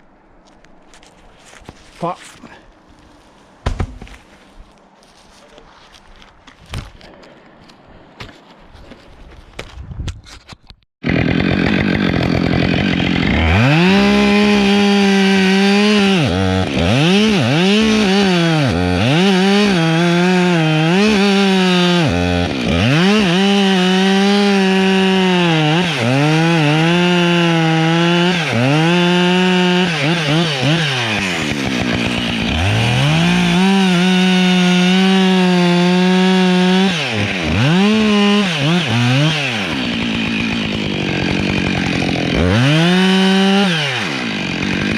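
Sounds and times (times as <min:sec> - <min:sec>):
chainsaw cutting wood: 0:11.0 - 0:44.9.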